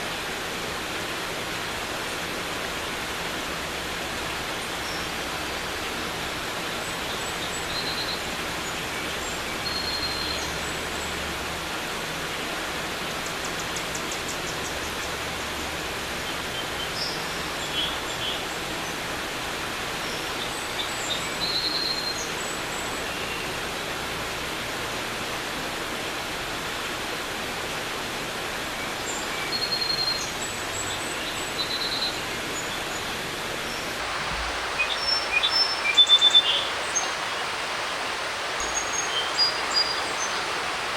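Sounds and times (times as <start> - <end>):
creek water running: 0.0 - 40.9
bird chirps: 34.0 - 40.8.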